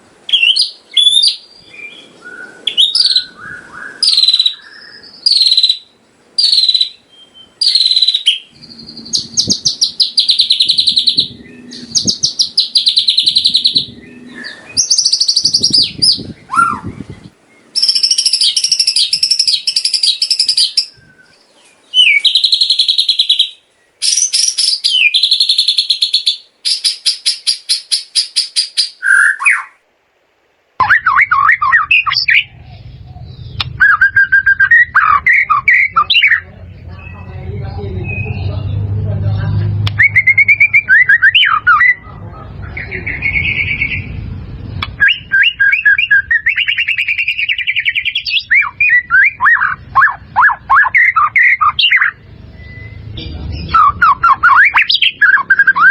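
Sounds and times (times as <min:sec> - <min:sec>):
bird singing whistles and trills: 0:00.3 - 0:29.8, 0:30.8 - 0:39.0, 0:39.6 - 0:55.9
low background hum: 0:30.6 - 0:55.9.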